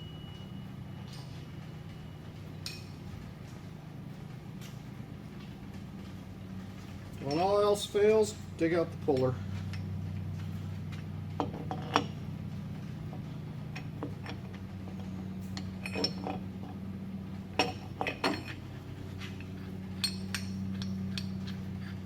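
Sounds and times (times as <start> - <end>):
steady low hum: 0.0 - 22.0
metal tools clinking: 7.2 - 7.8, 13.8 - 16.8, 17.6 - 18.7, 19.4 - 21.6.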